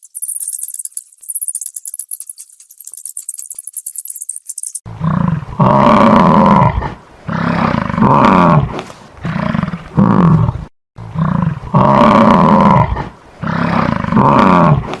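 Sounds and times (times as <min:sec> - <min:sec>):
large animal roaring: 0:04.9 - 0:14.9.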